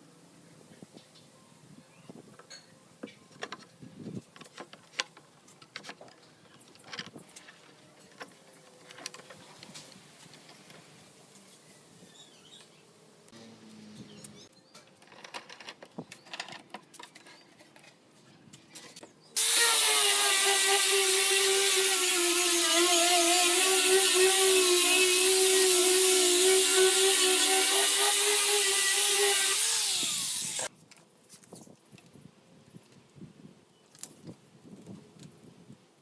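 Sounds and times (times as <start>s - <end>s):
electric power tool whining: 19.4s - 30.7s.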